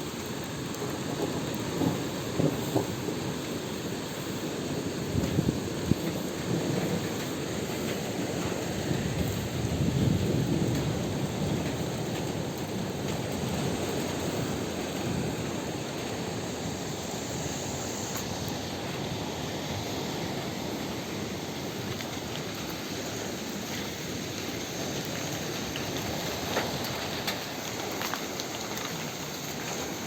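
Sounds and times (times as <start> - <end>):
rain falling: 0.0 - 30.0
thunder rumble: 0.2 - 17.7.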